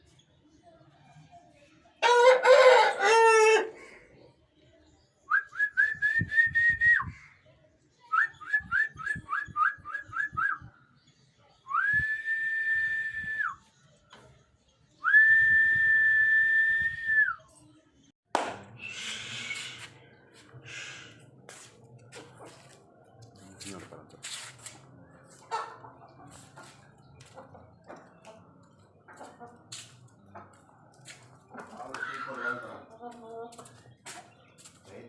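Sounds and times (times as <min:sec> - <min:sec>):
person whistling: 0:15.0 - 0:17.4, 0:18.8 - 0:19.8.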